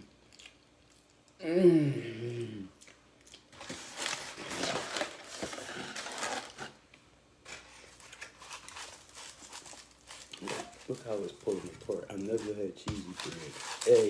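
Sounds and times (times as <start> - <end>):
packaging rustling: 3.6 - 6.9, 7.5 - 14.0.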